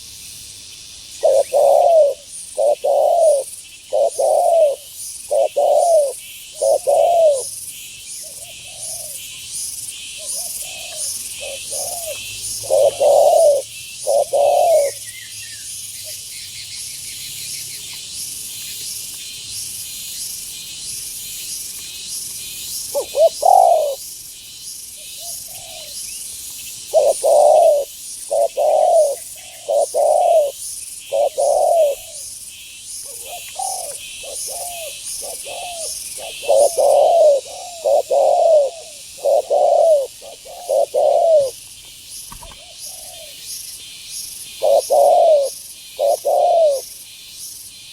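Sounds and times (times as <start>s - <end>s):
insect chorus: 0.0s - 47.9s
dove cooing: 1.2s - 7.5s, 8.3s - 9.2s, 10.2s - 15.0s, 22.9s - 24.0s, 25.2s - 26.0s, 26.9s - 32.2s, 33.0s - 41.6s, 42.3s - 43.4s, 44.6s - 46.9s.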